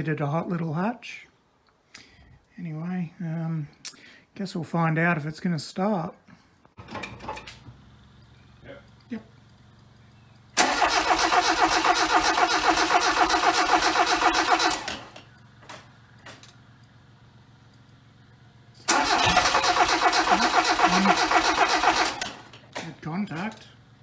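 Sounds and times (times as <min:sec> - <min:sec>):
car engine cranking on starter: 0:09.5 - 0:16.6, 0:18.8 - 0:22.8.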